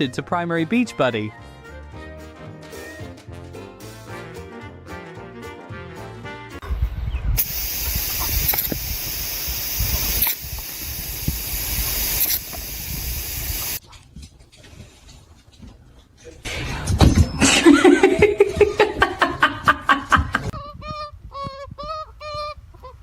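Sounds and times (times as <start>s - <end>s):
loud steady hissing: 7.4s - 13.8s.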